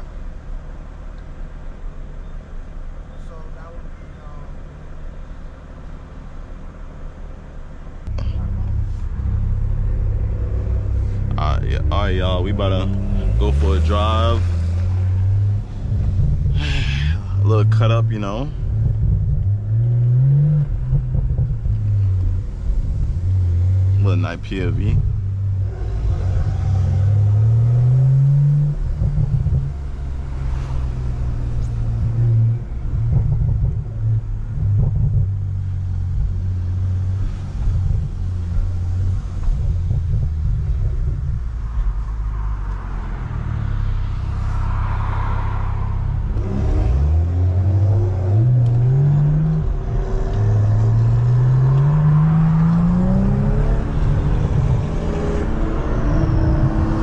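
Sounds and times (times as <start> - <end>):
car engine revving under load: 0.0 - 57.0.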